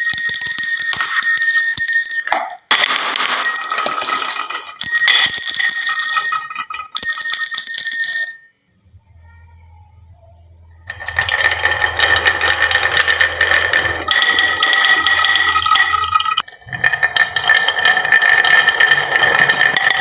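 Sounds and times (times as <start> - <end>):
bell-like ringing: 0.0 - 2.7, 3.3 - 8.6
marbles clattering down wooden run: 0.0 - 8.5, 10.9 - 20.0.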